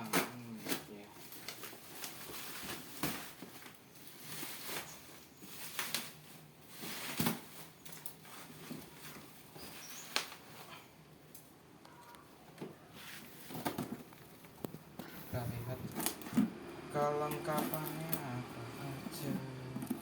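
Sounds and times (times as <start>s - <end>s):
packaging rustling and scraping: 0.0s - 10.8s, 12.9s - 16.6s.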